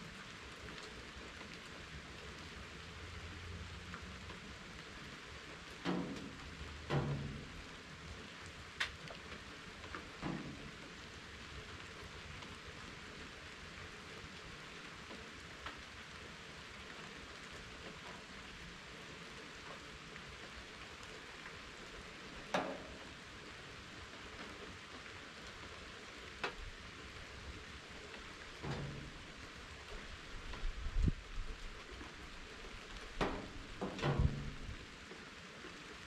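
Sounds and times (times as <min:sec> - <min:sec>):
steady rain hiss: 0:00.0 - 0:36.0
sharp raindrop taps: 0:03.9 - 0:13.3, 0:15.0 - 0:15.8, 0:19.5 - 0:35.9.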